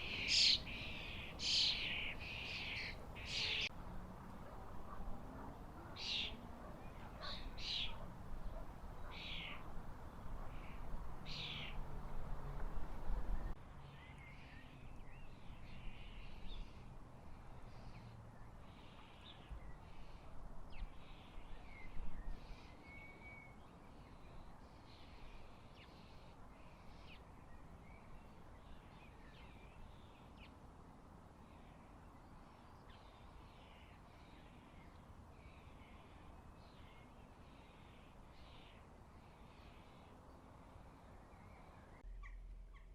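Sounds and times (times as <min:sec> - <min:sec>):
garden birds calling: 0:00.0 - 0:30.6.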